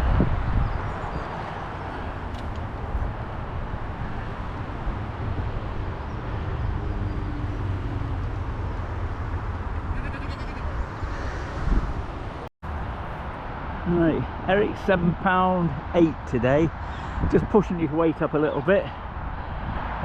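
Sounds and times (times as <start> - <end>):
wind rumble on microphone: 0.0 - 20.0
sheep bleating: 9.9 - 10.8.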